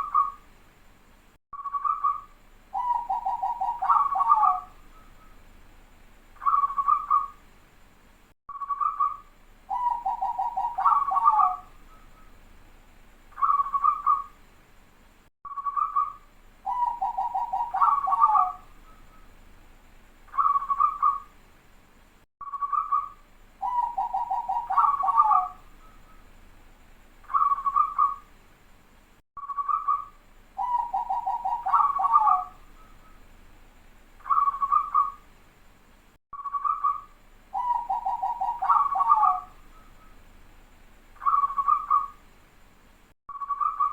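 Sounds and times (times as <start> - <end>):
dove cooing and trilling: 1.8 - 5.3, 6.4 - 7.4, 8.8 - 12.3, 13.4 - 14.3, 16.7 - 19.2, 20.4 - 21.3, 22.6 - 26.2, 27.3 - 28.2, 30.6 - 33.2, 34.2 - 35.2, 36.5 - 40.1, 41.2 - 42.2.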